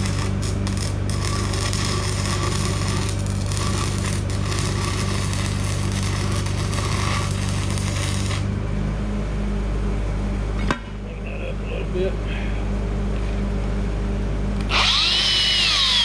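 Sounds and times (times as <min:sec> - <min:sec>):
welding arc crackling and hissing: 0:00.0 - 0:08.6
welding machine hum: 0:00.0 - 0:08.6.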